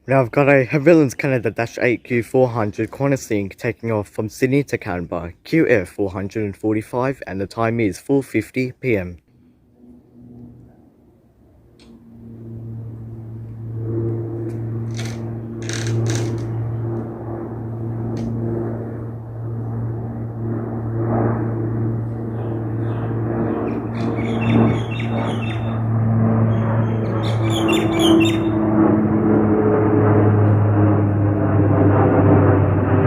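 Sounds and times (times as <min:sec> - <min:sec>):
turboprop propeller drone: 0:09.2 - 0:33.0
birds chirping: 0:22.2 - 0:28.7.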